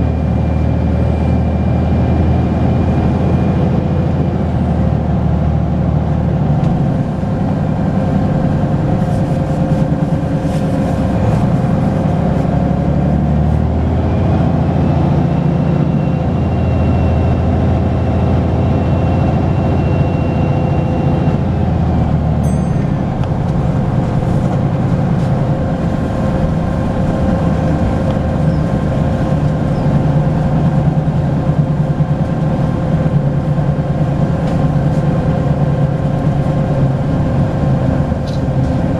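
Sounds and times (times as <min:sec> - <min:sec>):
bus diesel engine running: 0:00.0 - 0:38.9
brief high ring: 0:22.4 - 0:23.2.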